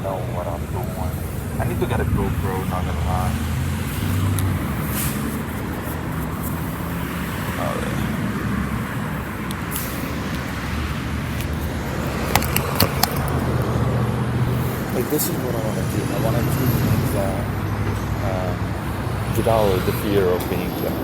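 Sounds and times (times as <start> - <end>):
vehicle hum and rumble: 0.0 - 21.0
sharp clicks: 11.4 - 13.7.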